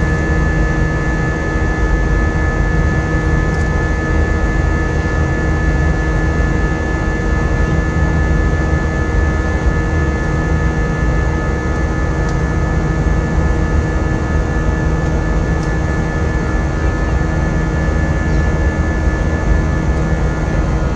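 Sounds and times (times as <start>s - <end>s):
jet engine cabin rush: 11.2s - 20.9s.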